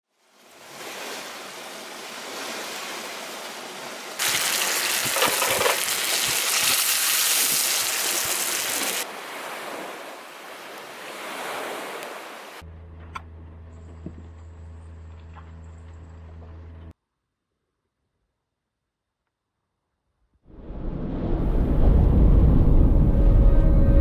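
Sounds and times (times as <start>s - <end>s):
steady rain falling: 4.2s - 9.0s.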